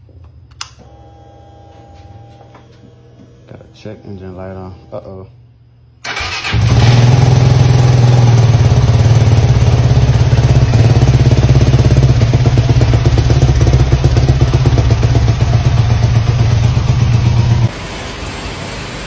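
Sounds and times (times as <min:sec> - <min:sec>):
motorbike engine running: 0:06.1 - 0:17.7.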